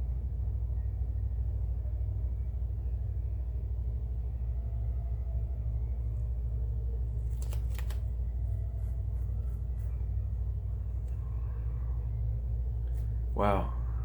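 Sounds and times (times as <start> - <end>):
steady low hum: 0.0 - 14.0
paper rustling and crackling: 7.1 - 9.0.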